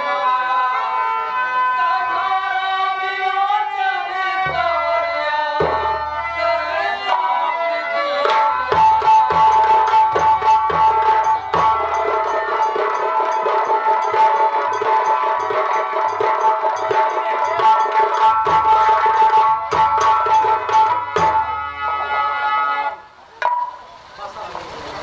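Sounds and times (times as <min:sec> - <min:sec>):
rapid hand-drum strikes: 0:04.4 - 0:07.4, 0:08.2 - 0:22.0, 0:23.4 - 0:25.0
sustained melody line: 0:04.4 - 0:24.0.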